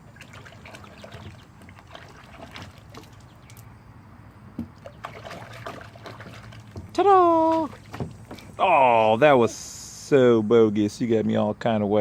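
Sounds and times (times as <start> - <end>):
water splashing and dripping: 0.0 - 3.7, 4.6 - 8.7.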